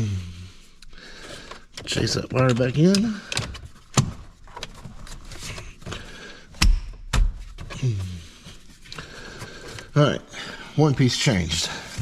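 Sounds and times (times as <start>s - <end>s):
plastic trim clicking and rattling: 1.4s - 4.8s.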